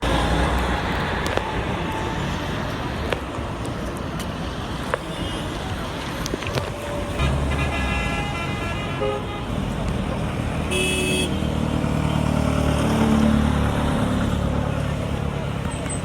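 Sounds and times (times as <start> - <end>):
road traffic: 0.0 - 16.0
vehicle engine close by: 9.6 - 16.0.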